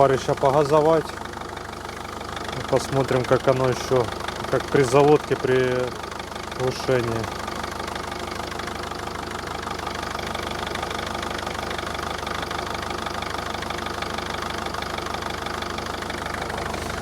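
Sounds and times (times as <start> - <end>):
diesel engine idling with clatter: 0.0 - 17.0.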